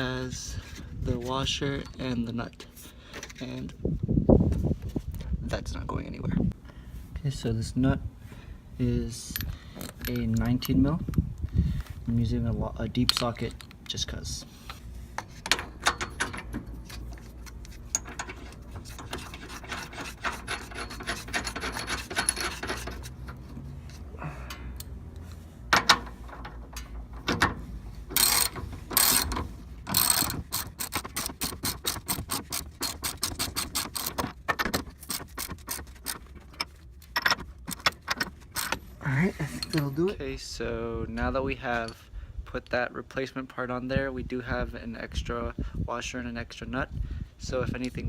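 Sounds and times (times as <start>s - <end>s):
socket ratchet clicking: 28.1s - 36.2s.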